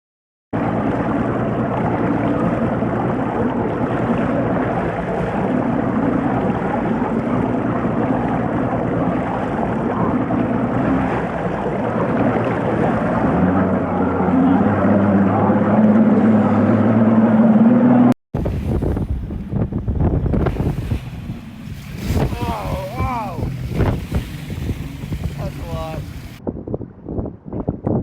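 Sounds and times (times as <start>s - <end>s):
outboard motor running: 0.6s - 26.4s
water rushing past: 0.6s - 26.4s
wind rushing: 8.6s - 28.0s.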